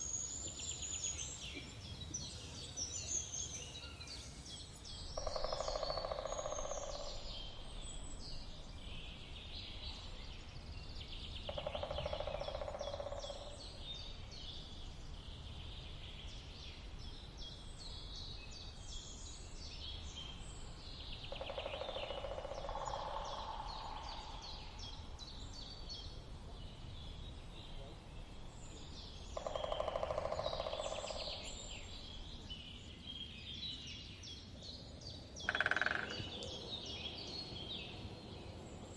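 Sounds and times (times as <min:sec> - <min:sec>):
songbirds chirping: 0:00.0 - 0:38.9
woodpecker drumming on wood: 0:05.2 - 0:07.2, 0:11.5 - 0:13.5, 0:21.3 - 0:23.6, 0:29.4 - 0:31.3, 0:35.4 - 0:36.3.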